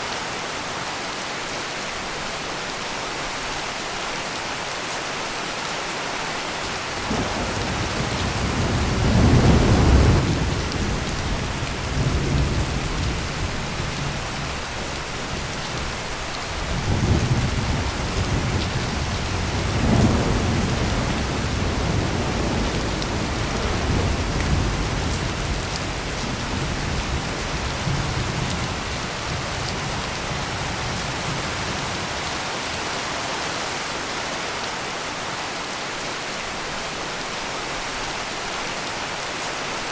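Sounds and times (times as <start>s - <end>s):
heavy rain: 0.0s - 39.9s
thunder rumbling: 7.0s - 14.6s, 16.6s - 32.2s.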